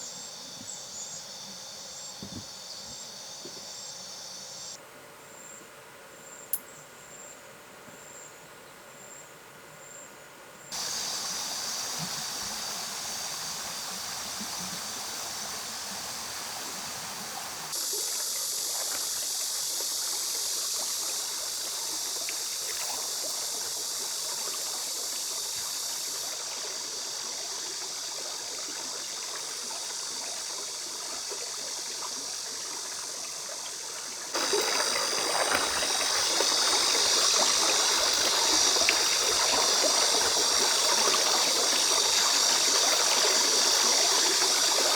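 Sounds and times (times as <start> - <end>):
stream water flowing over rocks: 10.7 - 44.9.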